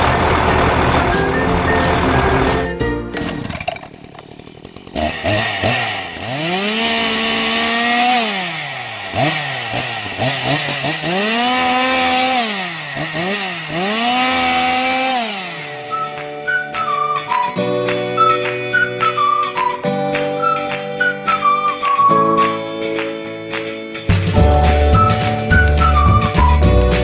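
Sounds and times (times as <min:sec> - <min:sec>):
chainsaw revving: 0:00.0 - 0:17.5.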